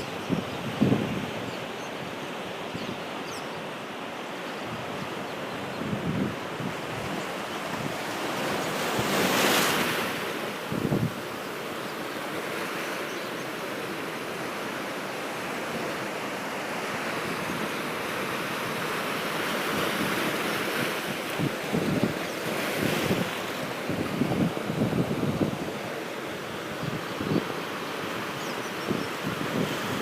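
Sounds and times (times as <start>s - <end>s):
wind buffeting the microphone: 0.0s - 1.6s, 4.7s - 9.9s, 10.6s - 11.3s, 19.6s - 26.0s, 26.6s - 27.6s, 28.4s - 30.0s
sea surf breaking on a beach: 0.0s - 30.0s.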